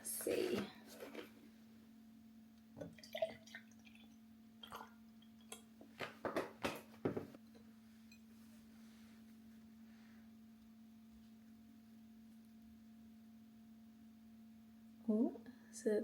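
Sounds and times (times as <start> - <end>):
milk pouring into glass: 2.8 - 5.7.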